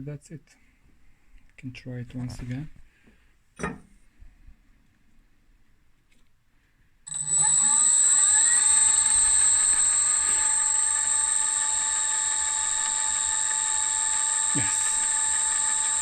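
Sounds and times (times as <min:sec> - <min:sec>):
lathe motor whining: 0:07.1 - 0:16.0.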